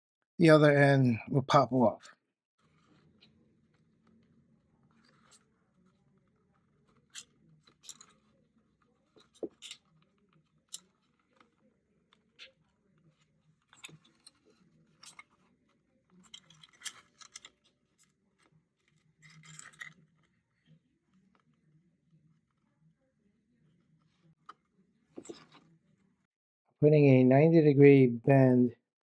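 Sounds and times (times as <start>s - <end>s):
scratchy rustle: 2.6s - 21.6s.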